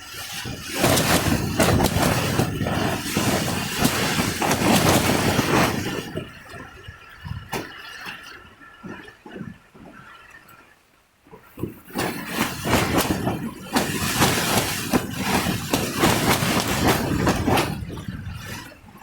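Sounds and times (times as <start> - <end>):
wind-driven rain: 0.0 - 7.6, 11.9 - 19.0
sharp knocks and rattles: 0.5 - 6.3, 11.6 - 18.7.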